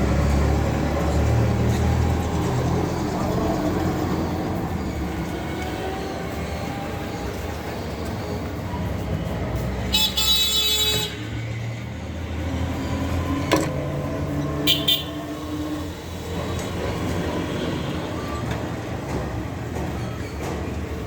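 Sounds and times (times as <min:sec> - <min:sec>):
traffic rumble: 0:00.0 - 0:21.0
vehicle horns tooting: 0:09.9 - 0:11.3, 0:14.6 - 0:15.4.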